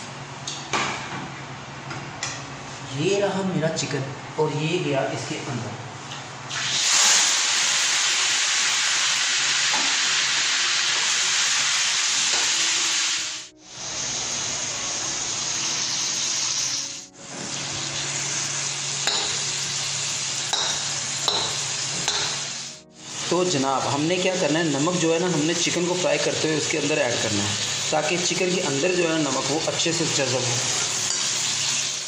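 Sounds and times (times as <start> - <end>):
chicken sizzling in hot oil: 6.5 - 32.0.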